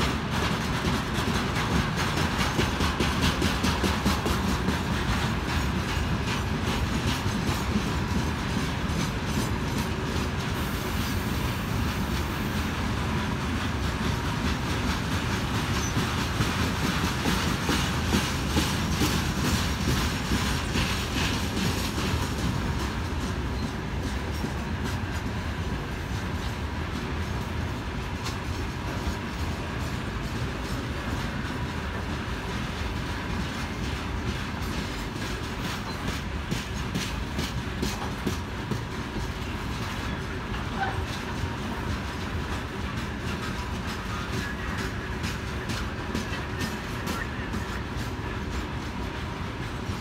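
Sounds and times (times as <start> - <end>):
train wheels clattering over rail joints: 0.0 - 50.0.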